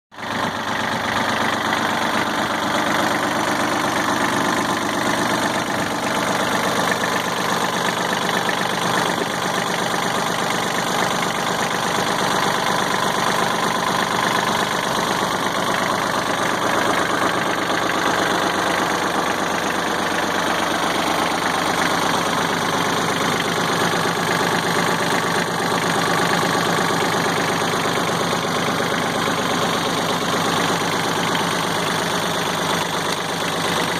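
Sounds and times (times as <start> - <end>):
diesel tractor engine running: 0.1 - 33.9.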